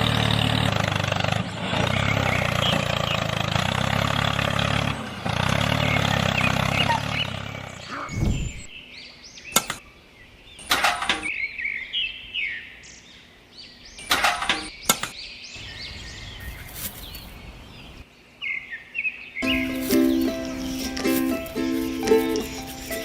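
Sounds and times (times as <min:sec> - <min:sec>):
small birds chirping: 0:00.0 - 0:23.0
sharp clicks: 0:09.6 - 0:09.8, 0:10.6 - 0:11.3, 0:14.0 - 0:15.2.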